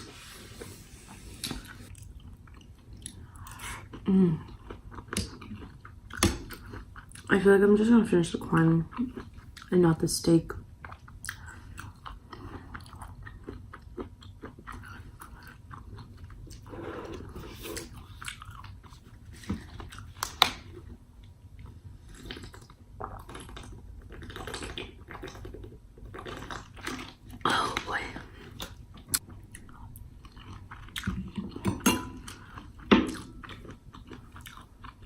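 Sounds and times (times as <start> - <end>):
chewing corn kernels: 32.4 - 35.0.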